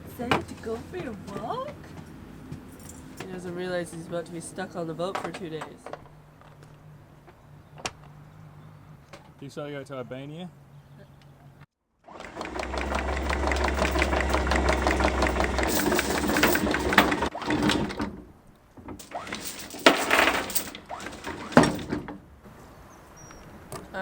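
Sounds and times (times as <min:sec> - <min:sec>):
machine clattering: 0:12.1 - 0:18.2, 0:18.9 - 0:22.2.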